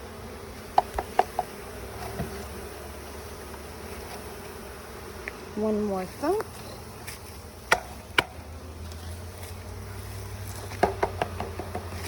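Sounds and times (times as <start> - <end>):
honeybees buzzing: 0.0 - 12.0
knocks on a bee package: 0.7 - 2.4, 7.7 - 8.4, 10.7 - 12.0.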